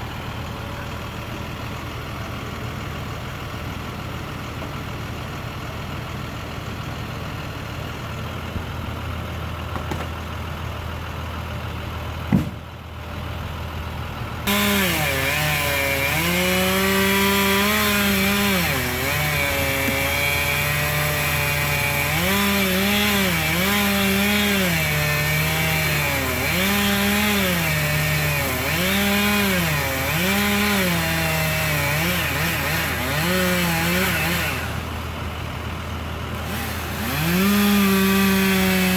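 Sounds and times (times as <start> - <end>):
heavy engine idling: 0.0 - 38.9
chainsaw cutting wood: 9.7 - 10.2, 12.3 - 12.7, 14.4 - 35.1, 36.3 - 38.9
sharp knock: 12.3 - 12.6.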